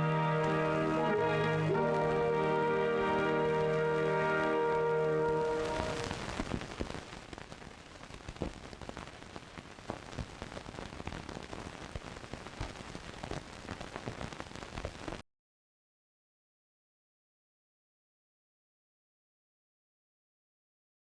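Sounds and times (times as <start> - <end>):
orchestral brass chord: 0.0 - 6.1
old film soundtrack: 0.0 - 6.5
crackle and pops: 0.0 - 15.2.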